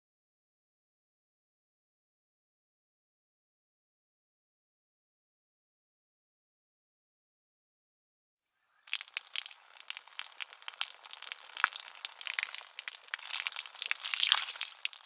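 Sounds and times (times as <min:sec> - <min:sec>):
dry material crackling by hand: 0:08.9 - 0:15.0.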